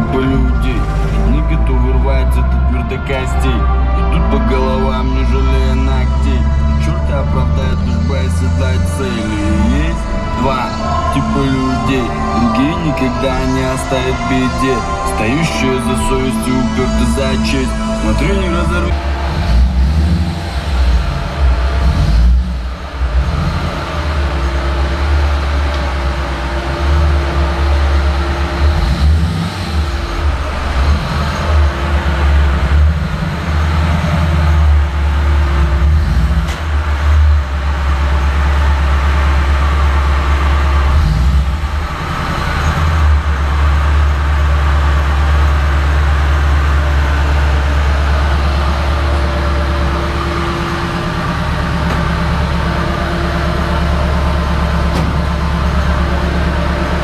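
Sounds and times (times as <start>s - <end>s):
car engine rumbling: 0.0s - 57.0s.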